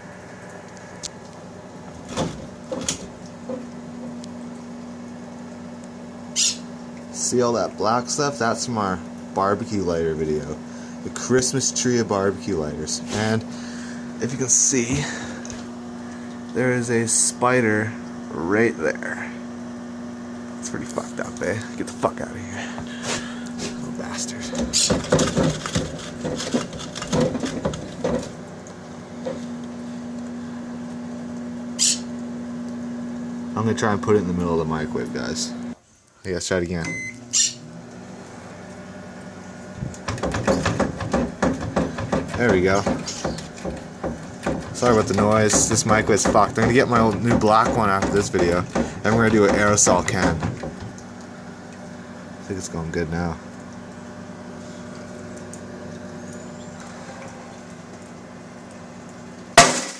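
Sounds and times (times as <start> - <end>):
microwave oven humming: 0.0 - 59.9
microwave door knocks: 40.0 - 51.0.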